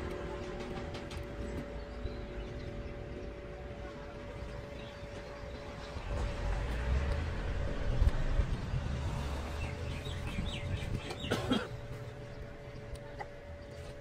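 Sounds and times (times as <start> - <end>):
low rumble: 0.0 - 11.1
small birds chirping: 9.4 - 14.0.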